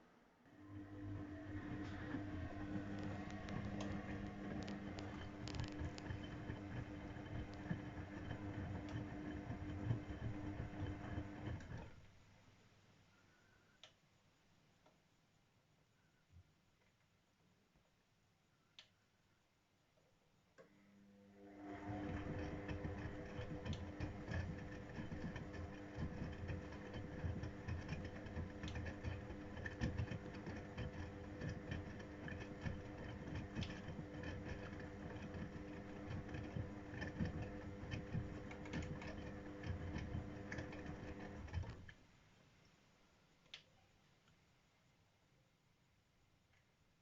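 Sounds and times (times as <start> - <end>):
washing machine motor hum: 0.0 - 12.2, 20.5 - 42.1.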